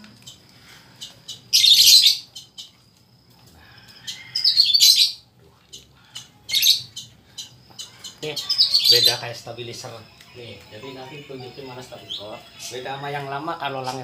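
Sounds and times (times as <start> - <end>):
small birds chirping: 0.0 - 14.0
high bird twittering: 1.0 - 2.8, 4.0 - 14.0.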